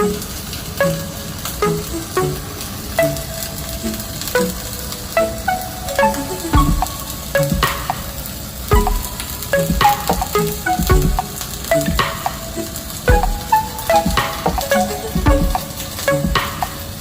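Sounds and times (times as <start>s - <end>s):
plucked melodic background music: 0.0s - 17.0s
low beat: 6.5s - 8.0s, 8.7s - 12.5s, 13.1s - 16.6s.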